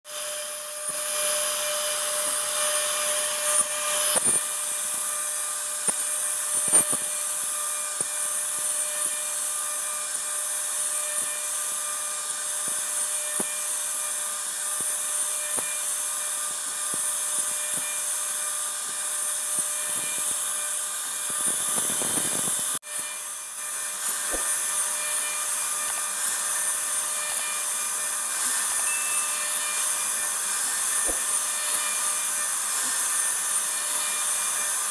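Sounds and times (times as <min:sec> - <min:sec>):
router spindle high whine: 0:00.1 - 0:34.9
bit ticking while cutting wood: 0:23.8 - 0:34.6.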